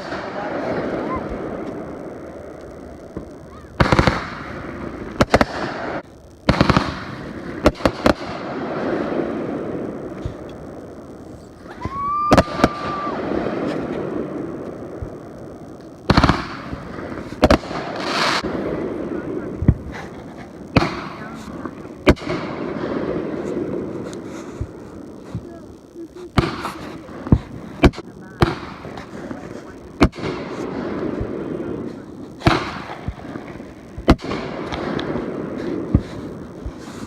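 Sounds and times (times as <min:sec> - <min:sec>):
fireworks bangs: 0:00.0 - 0:37.0
whistling firework shell: 0:11.6 - 0:13.2.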